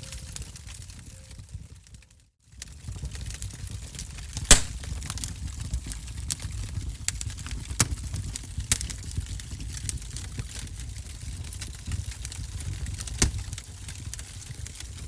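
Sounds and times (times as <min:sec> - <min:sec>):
wood fire crackling: 0:04.5 - 0:04.9.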